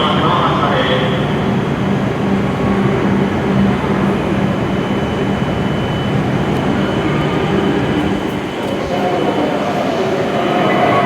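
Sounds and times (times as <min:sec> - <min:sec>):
train running rumble: 0:00.0 - 0:11.0
faint high whine: 0:03.7 - 0:11.0.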